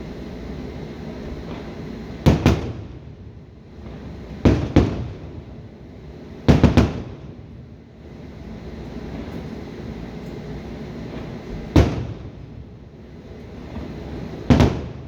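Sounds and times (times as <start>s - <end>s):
fireworks bursting: 1.1s - 3.1s, 3.8s - 5.6s, 6.4s - 7.5s, 11.0s - 12.5s, 13.6s - 15.0s.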